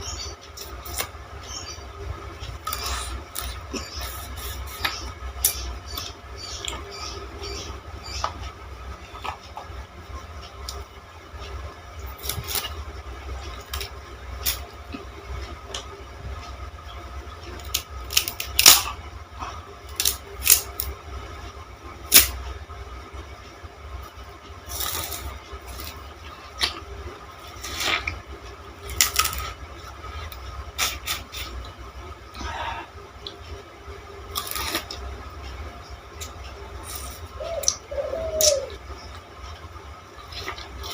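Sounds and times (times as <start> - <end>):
steady low hum: 0.0 - 40.9
sugar cane crunching: 2.6 - 5.6, 12.2 - 12.8, 17.6 - 19.0, 19.9 - 21.0, 24.6 - 26.0, 28.8 - 29.6, 34.3 - 35.0.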